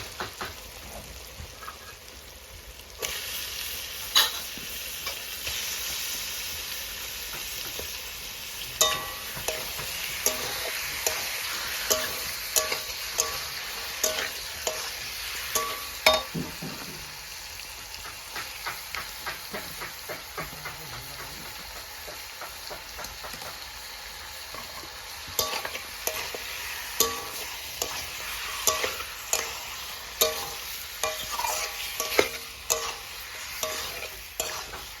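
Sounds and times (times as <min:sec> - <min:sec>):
gravy sizzling in a pot: 0:00.0 - 0:35.0
spoon knocking and scraping pot: 0:08.8 - 0:14.9, 0:15.5 - 0:17.0, 0:18.0 - 0:23.6, 0:25.3 - 0:26.4, 0:27.0 - 0:35.0.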